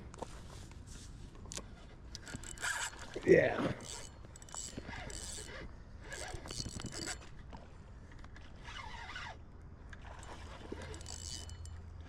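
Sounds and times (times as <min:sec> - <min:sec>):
spinning reel whirring: 0:02.2 - 0:07.4, 0:10.0 - 0:11.8.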